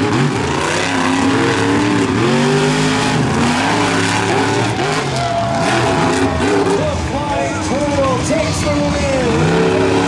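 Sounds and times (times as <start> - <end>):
monster truck engines revving: 0.0 - 10.0.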